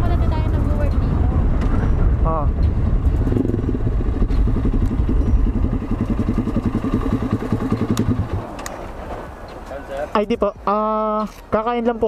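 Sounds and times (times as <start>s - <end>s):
motorcycle engine idling: 2.9s - 9.0s.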